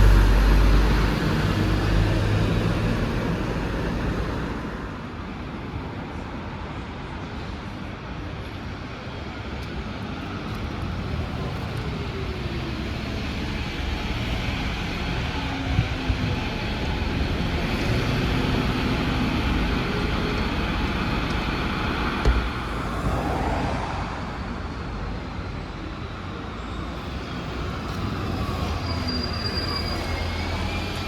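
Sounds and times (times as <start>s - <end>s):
transit vehicle approaching: 0.0s - 31.0s.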